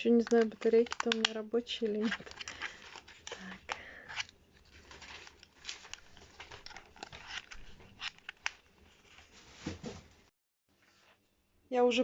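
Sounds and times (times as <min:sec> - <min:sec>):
plastic casing rustling: 0:00.0 - 0:10.0
light plastic clicks: 0:00.2 - 0:01.4.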